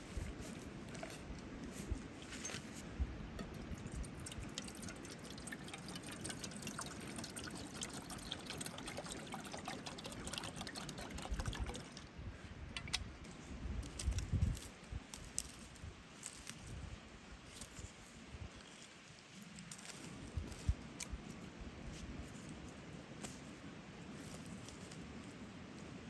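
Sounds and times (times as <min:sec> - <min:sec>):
small crackles and ticks: 0:00.0 - 0:12.1, 0:12.8 - 0:25.9
water trickling and pouring: 0:03.4 - 0:12.2.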